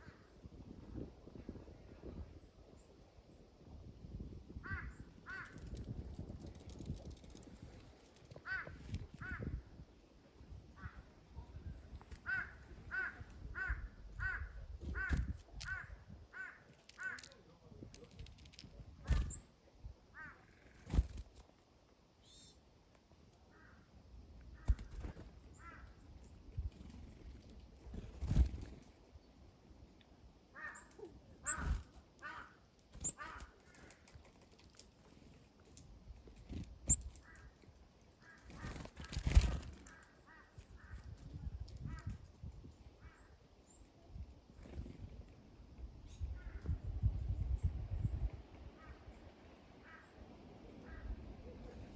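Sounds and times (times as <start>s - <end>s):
crow cawing: 12.3s - 17.4s, 30.6s - 30.9s, 32.2s - 32.6s, 33.2s - 33.6s.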